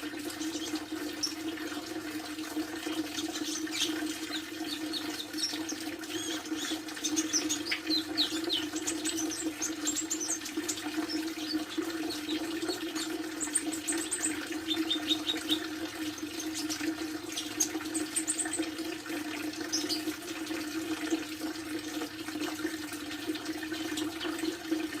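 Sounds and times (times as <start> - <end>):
bird chirping and trilling: 2.9 - 18.7, 19.6 - 20.1.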